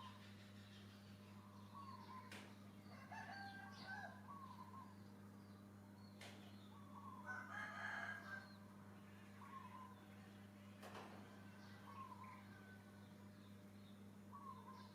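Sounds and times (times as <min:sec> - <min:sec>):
low electrical hum: 0:00.0 - 0:14.9
faint gliding animal calls: 0:09.0 - 0:10.3, 0:11.4 - 0:12.9, 0:14.3 - 0:14.9.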